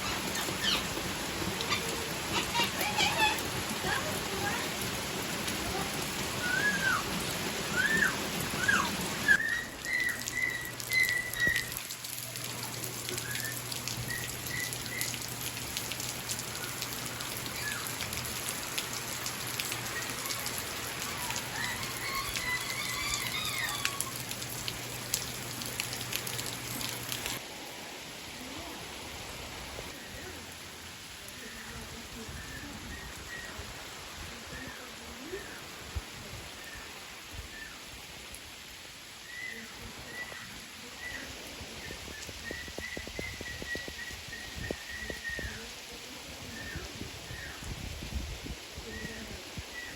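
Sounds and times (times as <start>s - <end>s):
birds chirping: 0.0s - 4.7s, 13.2s - 15.3s
heavy rain falling: 0.0s - 49.9s.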